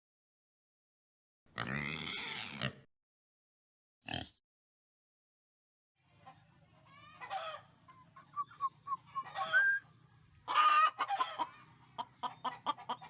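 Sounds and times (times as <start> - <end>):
chickens clucking: 6.1 - 13.0
chicken drawn-out call: 6.9 - 13.0.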